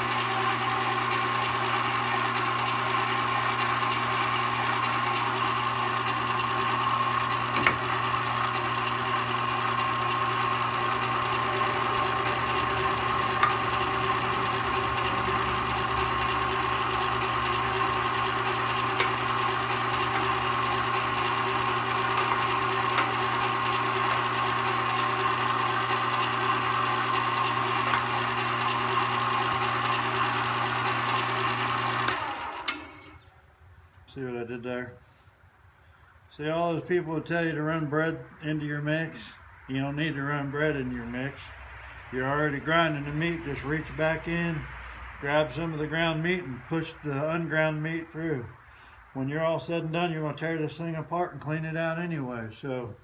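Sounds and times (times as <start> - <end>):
electric meat grinder running: 0.0 - 33.2.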